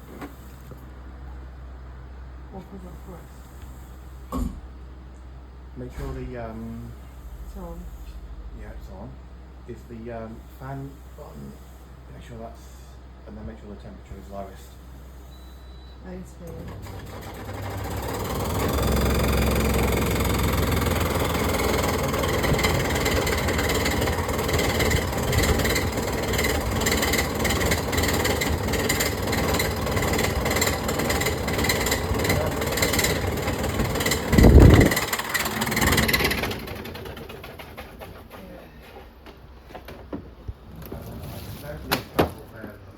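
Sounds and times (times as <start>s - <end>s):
faint hum: 0.0s - 16.8s
heavy thump: 4.3s - 4.7s, 6.0s - 6.6s
air conditioner rattling and knocking: 16.5s - 41.1s.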